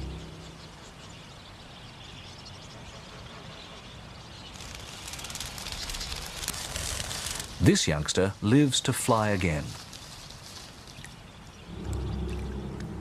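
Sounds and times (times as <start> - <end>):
faint outdoor background: 0.0 - 13.0
bird splashing in water: 9.7 - 13.0.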